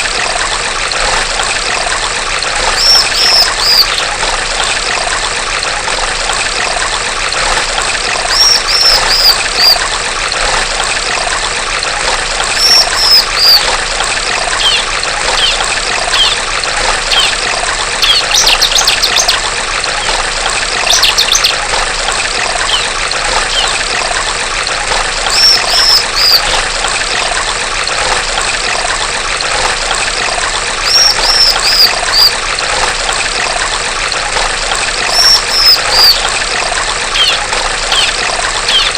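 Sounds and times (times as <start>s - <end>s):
trickling stream water: 0.0s - 38.9s
bird rattling trills: 2.6s - 4.1s, 8.3s - 9.8s, 12.5s - 13.7s, 14.6s - 20.2s, 20.8s - 21.6s, 22.5s - 23.8s, 25.2s - 26.5s, 30.8s - 32.4s, 35.0s - 36.3s, 37.1s - 38.9s
bird calling falling notes: 2.7s - 4.1s, 8.3s - 9.8s, 12.6s - 13.7s, 14.6s - 16.4s, 22.6s - 23.8s, 25.3s - 26.5s, 30.8s - 32.4s, 35.1s - 36.3s, 37.2s - 38.9s.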